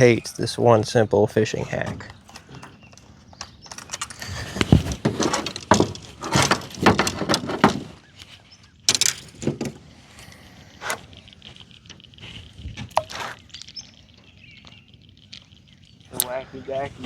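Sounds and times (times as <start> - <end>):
knocks and clatters: 1.8 - 9.9
rustling: 2.0 - 17.0.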